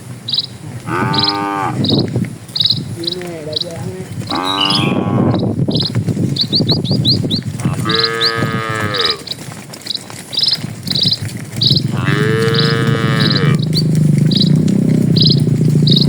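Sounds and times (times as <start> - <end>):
bird chirps: 0.0 - 16.0
cattle mooing: 0.6 - 1.9, 4.2 - 5.5, 7.6 - 9.4, 11.7 - 16.0.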